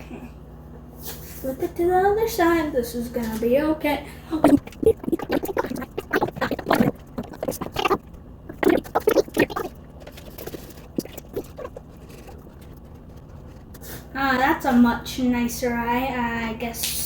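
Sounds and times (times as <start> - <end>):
marker drawing: 4.5 - 14.0
rustling and scratching of handling: 4.6 - 15.0.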